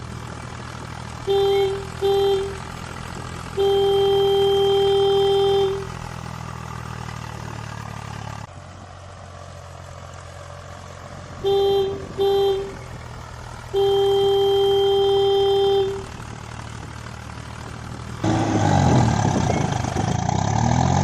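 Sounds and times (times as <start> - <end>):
steady engine hum: 0.0 - 21.0
vehicle horn honking: 1.2 - 6.2, 11.4 - 12.9, 13.7 - 16.3.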